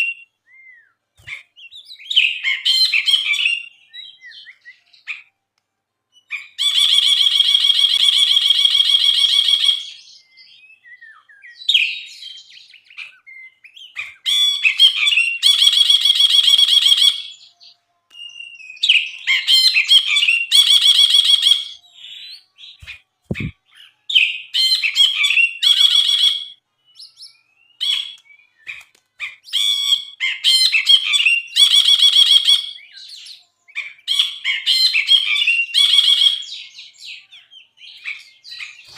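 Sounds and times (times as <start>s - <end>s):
low thump: 23.3s - 23.5s.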